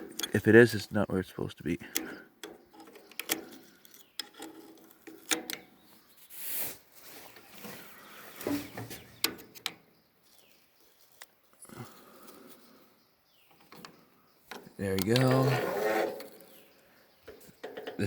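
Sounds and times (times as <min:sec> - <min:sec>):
metal parts clicking and knocking: 0:01.8 - 0:05.7
rasping rub: 0:15.5 - 0:16.4.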